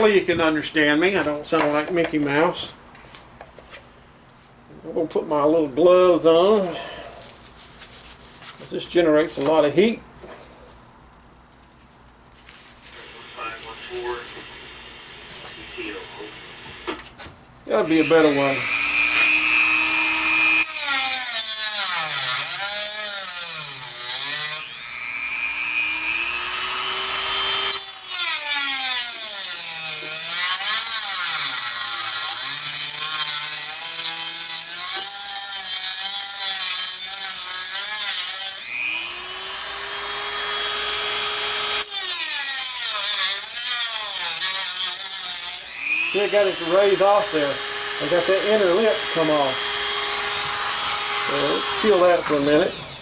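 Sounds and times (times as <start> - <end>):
rotary tool cutting: 25.8 - 53.0.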